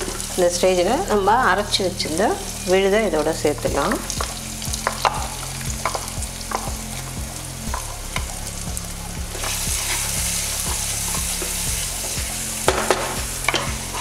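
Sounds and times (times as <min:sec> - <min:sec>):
paste sizzling in hot oil: 0:00.0 - 0:14.0
spatula stirring and scraping: 0:04.2 - 0:08.4, 0:09.3 - 0:12.6.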